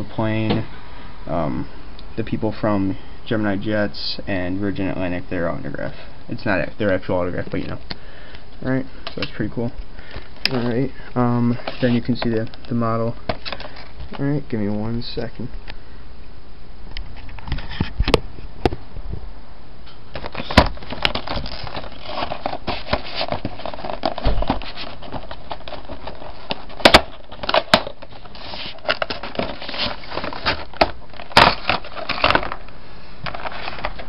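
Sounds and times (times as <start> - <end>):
packaging crinkling and rustling: 11.5 - 14.2, 20.1 - 34.0.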